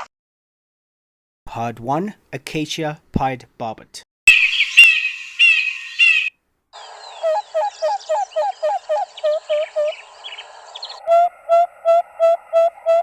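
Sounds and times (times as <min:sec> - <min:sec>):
faint bird twittering: 0:04.3 - 0:11.0
bird hooting song: 0:04.3 - 0:13.0.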